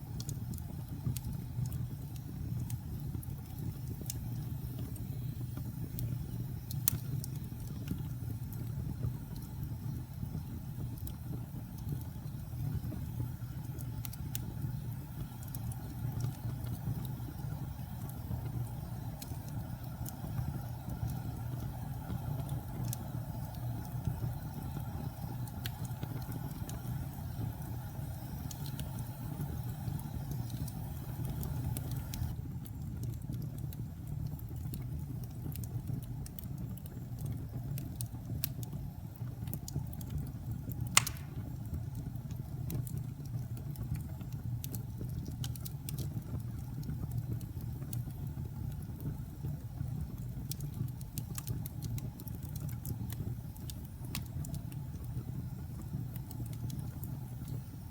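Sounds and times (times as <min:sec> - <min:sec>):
fire burning in a fireplace: 0:00.0 - 0:57.9
fire crackling: 0:00.0 - 0:57.9
sharp pop of fire: 0:40.9 - 0:41.8.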